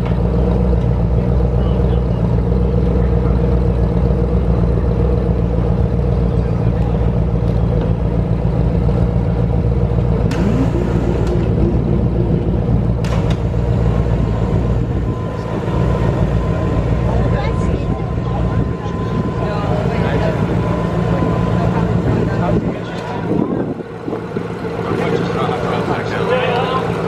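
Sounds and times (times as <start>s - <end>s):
vehicle engine idling: 0.0s - 27.0s.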